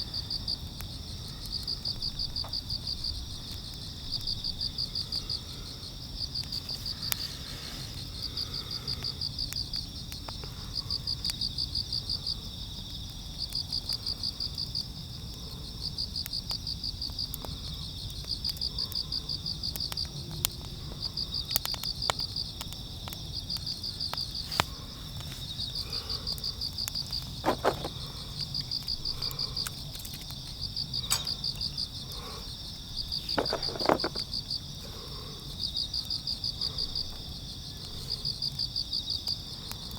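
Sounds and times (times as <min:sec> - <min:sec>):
insects chirping in trills: 0:00.0 - 0:39.9.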